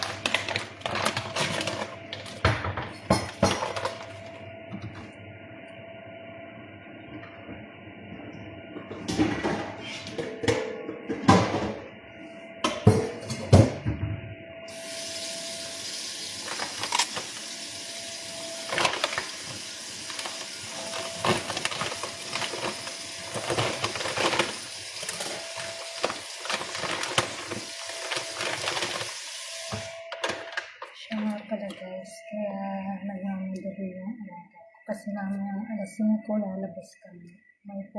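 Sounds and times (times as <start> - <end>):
kitchen knocks and clatters: 0.0 - 4.2, 8.8 - 11.9, 12.7 - 14.2.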